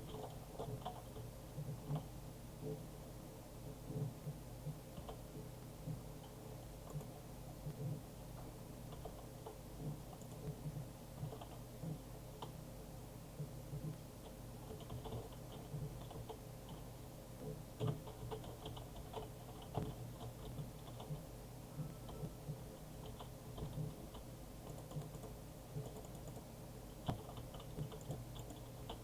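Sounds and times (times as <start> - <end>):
faint low hum: 0.0 - 29.0
light clicks and taps: 22.1 - 29.0.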